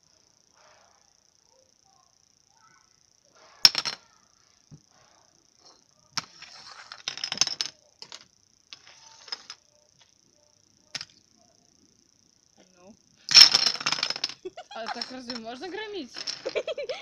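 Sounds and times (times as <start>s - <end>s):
toy bricks clattering: 3.6s - 4.0s, 6.2s - 9.7s, 10.9s - 11.2s, 13.3s - 17.0s.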